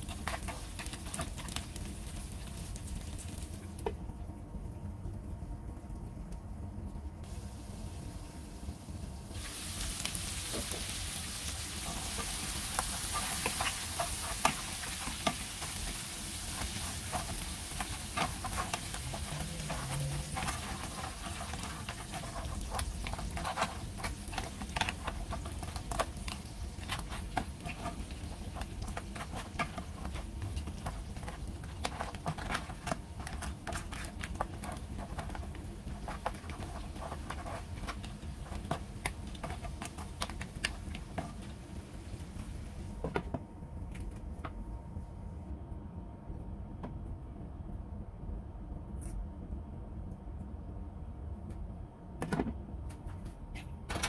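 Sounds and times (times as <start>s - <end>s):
wooden spatula scraping: 0.0s - 1.7s, 11.7s - 41.6s
crab sizzling in a pan: 0.0s - 3.7s, 7.3s - 42.4s.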